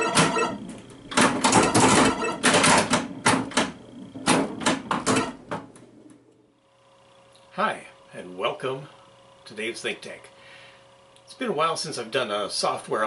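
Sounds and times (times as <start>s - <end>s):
pinball machine clacks and knocks: 0.0s - 5.7s.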